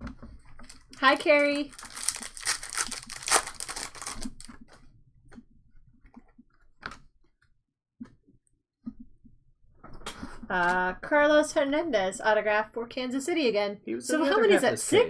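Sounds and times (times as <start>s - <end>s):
wrapper crinkling and tearing: 0.6s - 4.6s.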